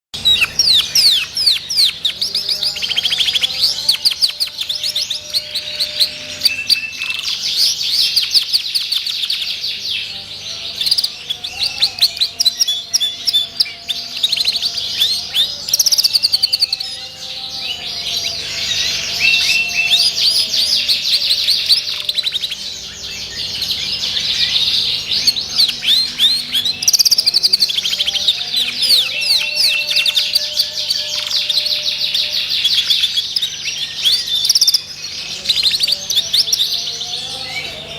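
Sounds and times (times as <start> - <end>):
canary singing trills: 0.1 - 37.9.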